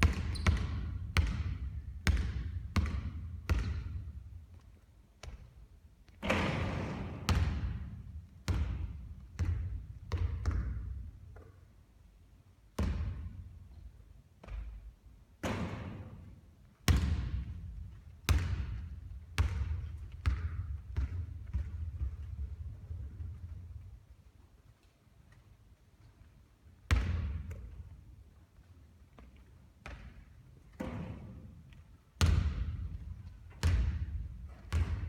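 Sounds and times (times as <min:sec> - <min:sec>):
basketball bouncing on hard court: 0:00.0 - 0:04.6, 0:05.2 - 0:05.6, 0:06.2 - 0:11.6, 0:12.8 - 0:13.4, 0:14.4 - 0:23.7, 0:26.9 - 0:28.0, 0:29.8 - 0:31.5, 0:32.2 - 0:35.0.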